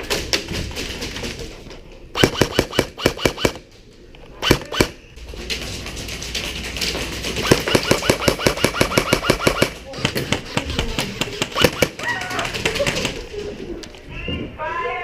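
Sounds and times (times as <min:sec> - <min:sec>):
airsoft guns firing: 0:02.1 - 0:03.7, 0:04.4 - 0:05.0, 0:07.3 - 0:13.2.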